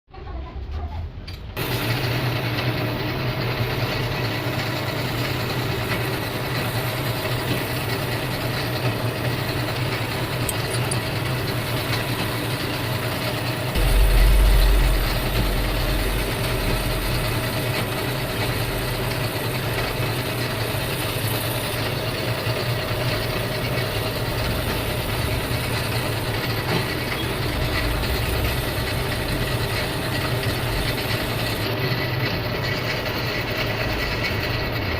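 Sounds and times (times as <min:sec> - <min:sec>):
lathe machining metal: 0:01.6 - 0:34.9
motor hum: 0:05.3 - 0:31.8
deep rumble: 0:13.8 - 0:19.9, 0:27.0 - 0:31.0.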